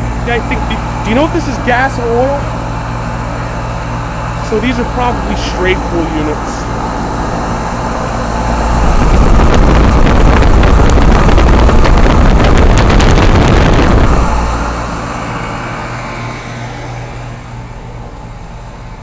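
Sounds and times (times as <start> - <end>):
air conditioner humming: 0.0 - 19.0
wind buffeting microphone: 4.8 - 15.4.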